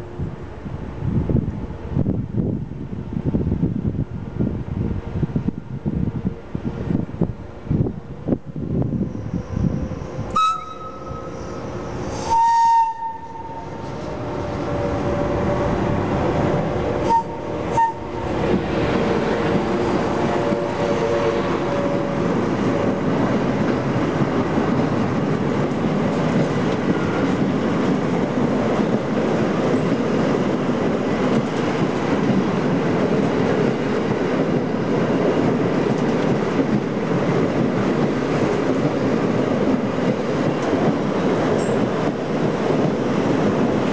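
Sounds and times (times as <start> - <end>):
train running past: 0.0 - 43.9
train horn blasts: 10.2 - 15.8, 17.0 - 18.4, 20.3 - 23.0.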